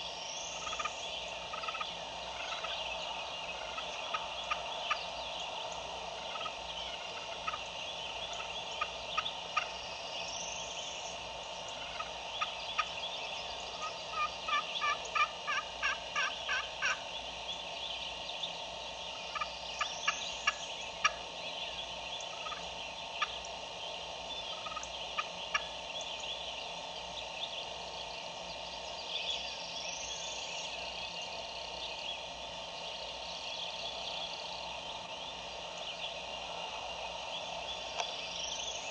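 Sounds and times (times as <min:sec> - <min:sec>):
small birds chirping: 0:00.0 - 0:38.9
woodland background: 0:00.0 - 0:38.9
distant turkey gobbling: 0:00.5 - 0:09.8, 0:11.4 - 0:17.2, 0:19.0 - 0:26.2.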